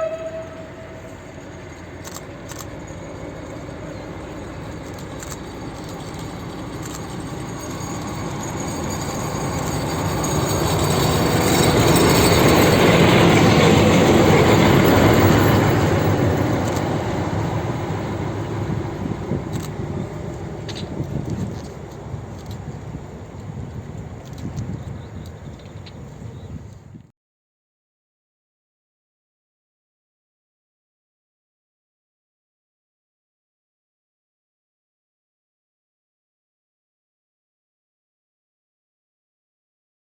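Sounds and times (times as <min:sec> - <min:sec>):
diesel train passing: 0:00.0 - 0:26.7.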